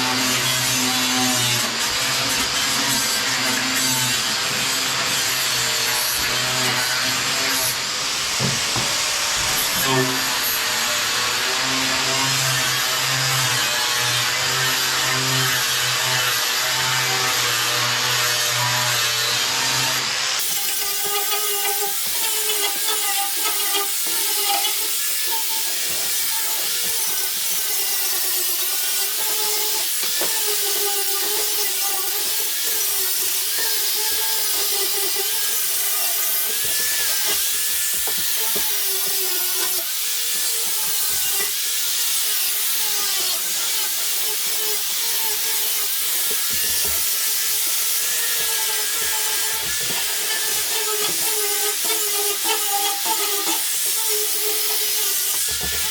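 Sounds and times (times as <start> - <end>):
power sander whining: 42.6 - 55.9.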